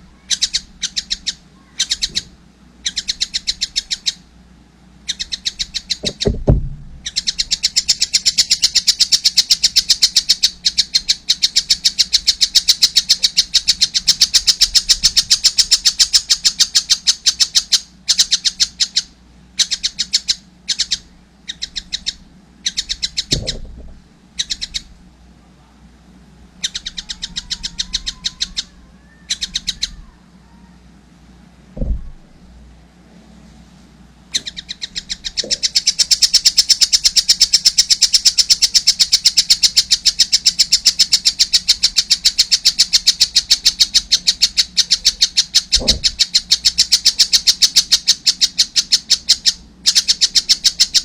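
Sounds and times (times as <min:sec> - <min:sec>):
dull low thumps: 0:06.0 - 0:07.1, 0:23.3 - 0:24.1, 0:31.8 - 0:32.4
kingfisher chattering calls: 0:26.6 - 0:30.2, 0:34.3 - 0:51.0.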